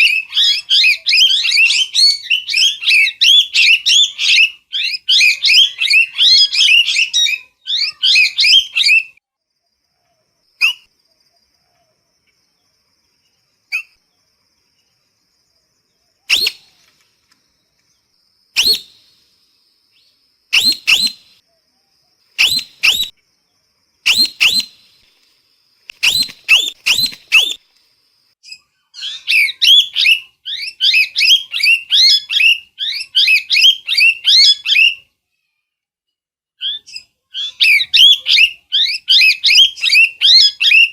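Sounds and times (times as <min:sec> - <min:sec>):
parrot sharp calls: 0:20.5 - 0:21.4, 0:22.4 - 0:23.1, 0:24.1 - 0:24.8.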